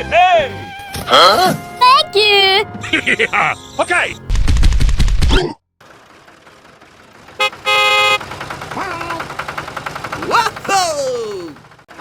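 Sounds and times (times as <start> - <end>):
vehicle horn toot: 7.4 - 8.2.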